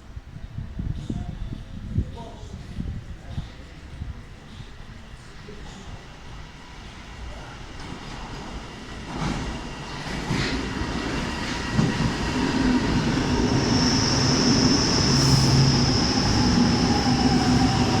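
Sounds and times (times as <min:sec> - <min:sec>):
metro train running noise: 0:00.0 - 0:18.0
high-pitched squeal: 0:12.3 - 0:18.0.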